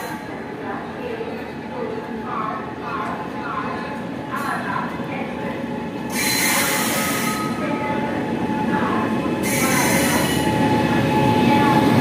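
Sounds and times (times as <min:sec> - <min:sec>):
train rumbling on rails: 0:00.0 - 0:12.0.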